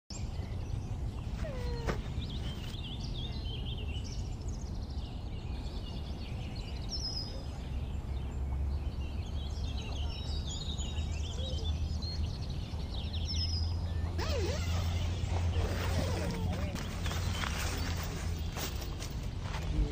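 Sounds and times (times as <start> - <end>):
birds chirping and calling: 0.1 - 19.9.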